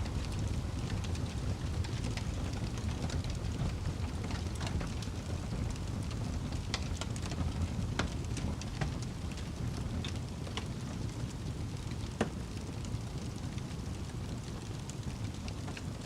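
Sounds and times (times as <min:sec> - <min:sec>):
fire crackling and popping: 0:00.0 - 0:16.0
fire flames rumbling: 0:00.0 - 0:16.0.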